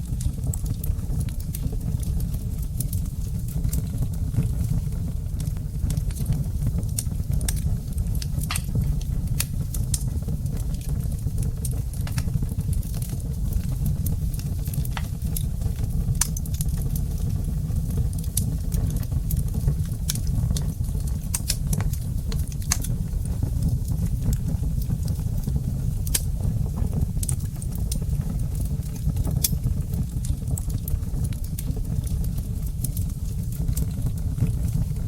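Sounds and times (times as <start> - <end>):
low rumble of burning: 0.0 - 35.0
wood fire crackling: 0.0 - 35.0.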